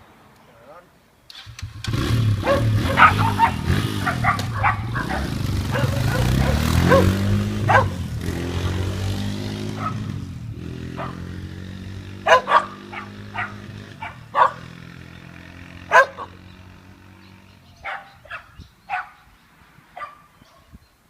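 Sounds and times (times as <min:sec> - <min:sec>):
dirt bike engine running: 0:01.6 - 0:17.8
dog barking: 0:02.4 - 0:08.1, 0:09.7 - 0:10.1, 0:11.0 - 0:11.3, 0:12.2 - 0:14.8, 0:15.8 - 0:16.4, 0:17.8 - 0:19.3, 0:20.0 - 0:20.7.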